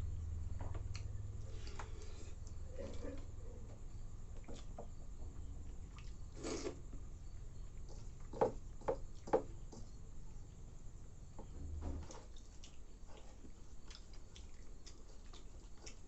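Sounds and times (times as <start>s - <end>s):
wet mouth eating sounds: 5.9s - 6.9s, 12.3s - 16.0s
lip smacks: 12.3s - 16.0s.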